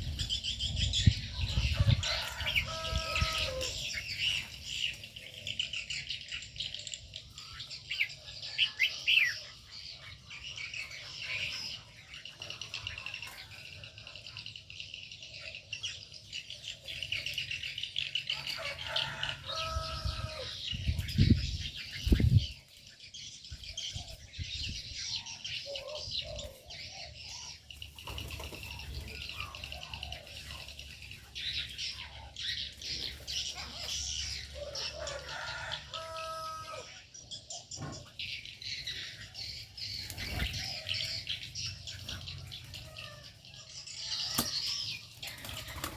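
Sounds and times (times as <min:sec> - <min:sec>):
birds chirping and calling: 0:00.0 - 0:45.9
wings flapping: 0:45.2 - 0:45.9.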